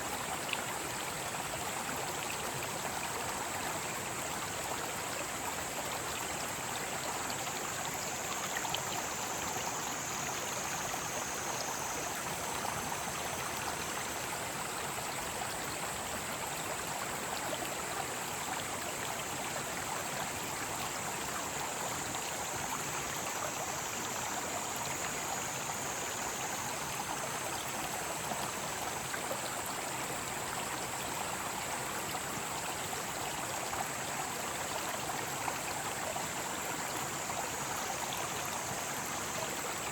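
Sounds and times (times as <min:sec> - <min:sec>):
mountain stream flowing: 0:00.0 - 0:39.9
cicadas droning: 0:05.1 - 0:16.3, 0:17.9 - 0:39.9
lower cicada song: 0:20.4 - 0:29.1.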